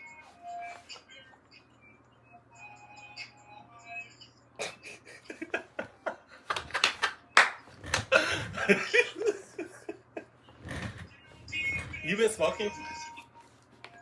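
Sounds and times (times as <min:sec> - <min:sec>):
person laughing: 0:04.6 - 0:06.9, 0:07.9 - 0:10.4
hand claps: 0:06.5 - 0:08.1.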